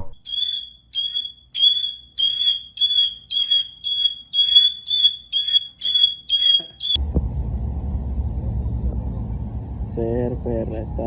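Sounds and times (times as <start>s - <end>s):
bird shrill beeping call: 0.2s - 7.0s.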